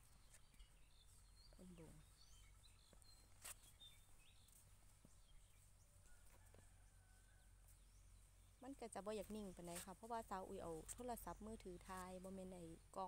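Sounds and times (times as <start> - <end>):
faint bird chirps: 0.0 - 9.8.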